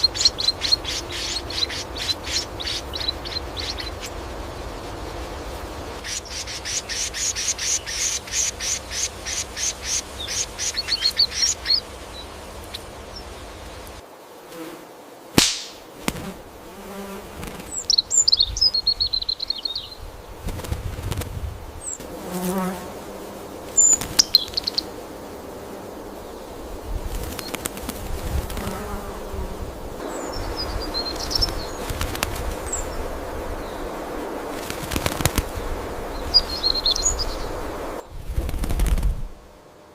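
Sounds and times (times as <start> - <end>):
birds chirping and whistling: 0.0 - 4.2, 6.0 - 13.3, 17.7 - 20.0, 23.8 - 24.9, 30.0 - 32.0, 36.1 - 37.6
rapid high bird chirps: 0.0 - 5.0, 6.0 - 13.8, 17.6 - 20.0, 23.7 - 25.0, 30.0 - 34.0, 34.6 - 37.6
sharp snap: 15.4 - 16.2
steady background haze: 29.1 - 38.1.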